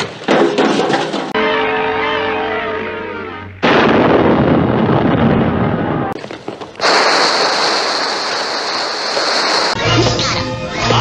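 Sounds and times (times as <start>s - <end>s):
loud explosion: 3.6s - 9.8s
steady hissing: 6.8s - 9.8s.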